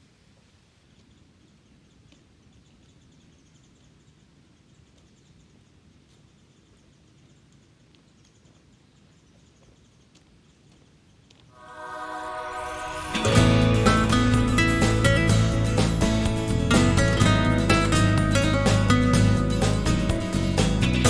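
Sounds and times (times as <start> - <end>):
low rumble: 11.6 - 21.0
music: 11.6 - 21.0.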